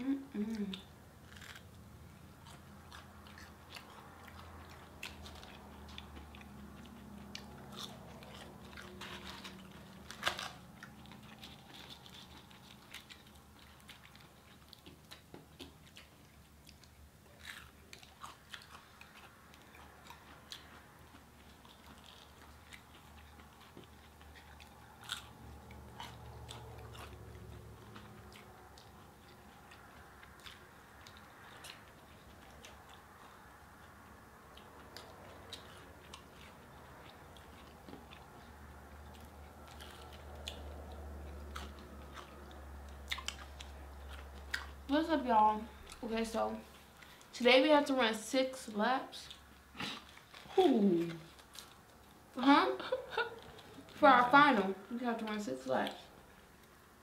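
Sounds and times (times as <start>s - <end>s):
people biting and chewing: 0.4s - 47.3s, 49.3s - 54.0s.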